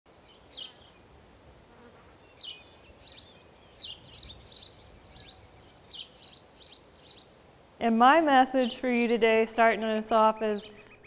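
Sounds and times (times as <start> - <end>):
small songbird chirping: 0.1 - 1.2, 2.2 - 7.5, 8.5 - 9.4
faint background hiss: 0.1 - 11.0.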